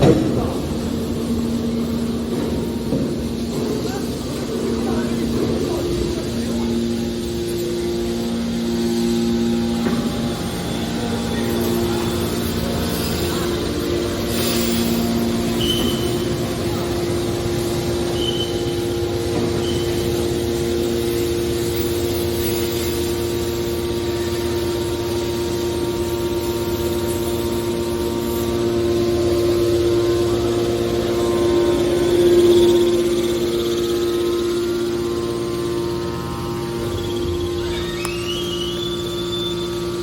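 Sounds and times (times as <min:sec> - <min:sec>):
hydraulic baler motor hum: 0:00.0 - 0:40.0
faint high squeaks: 0:37.0 - 0:40.0.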